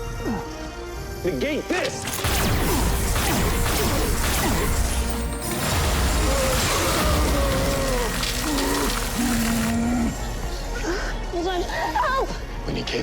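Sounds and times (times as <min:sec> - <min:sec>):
dramatic score: 0:00.0 - 0:13.0
fight crashes and impacts: 0:02.3 - 0:09.8.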